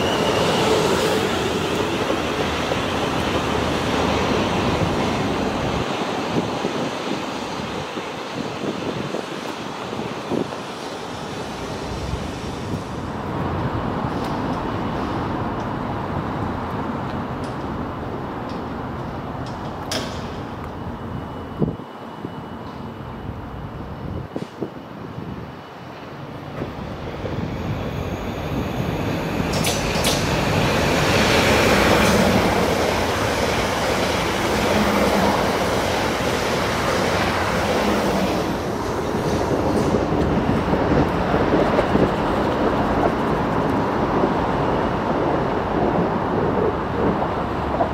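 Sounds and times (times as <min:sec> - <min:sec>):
train wheels clattering over rails: 0:29.3 - 0:47.9.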